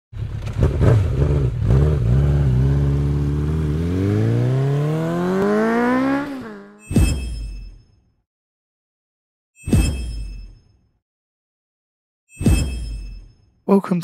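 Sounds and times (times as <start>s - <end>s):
engine revving: 0.2s - 6.8s.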